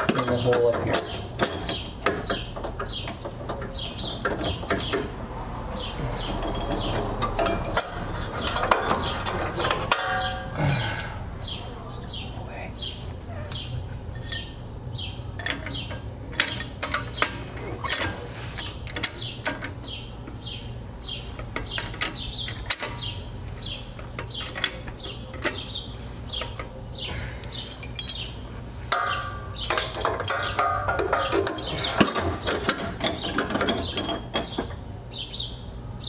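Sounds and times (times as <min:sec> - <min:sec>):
metallic clicks and knocks: 0:00.0 - 0:10.5, 0:15.4 - 0:19.9, 0:21.4 - 0:23.1, 0:28.9 - 0:34.8
steady low hum: 0:00.0 - 0:36.0
metallic tool rattling: 0:06.2 - 0:10.6.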